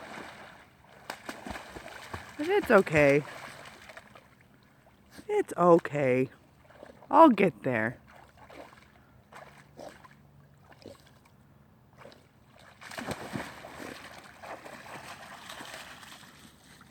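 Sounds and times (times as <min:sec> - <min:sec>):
dog splashing in water: 0:00.0 - 0:04.4, 0:08.0 - 0:11.2, 0:12.0 - 0:16.9.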